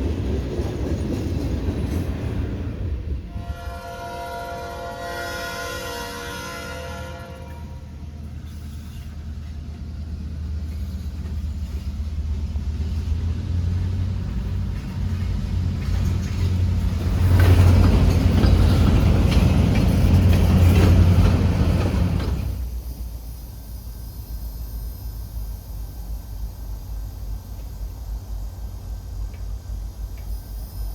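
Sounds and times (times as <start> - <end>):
diesel train rumble: 0.0 - 30.9
wheels clattering over rails: 10.6 - 22.7.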